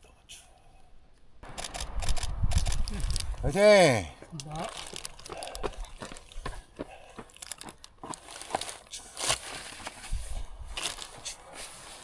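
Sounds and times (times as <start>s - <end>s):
clicks and crackles: 1.4s - 3.5s, 4.4s - 6.6s, 7.2s - 10.0s, 10.7s - 11.5s
crinkly rustling: 4.5s - 12.0s.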